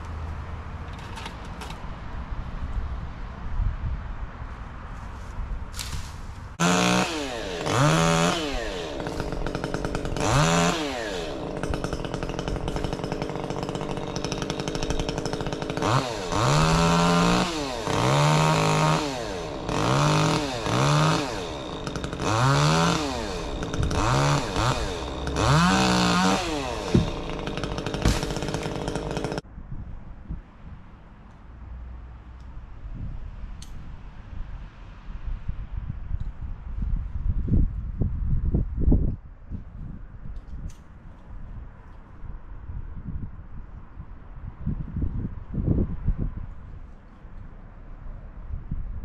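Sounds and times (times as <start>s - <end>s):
chainsaw idling and revving: 6.6s - 29.5s.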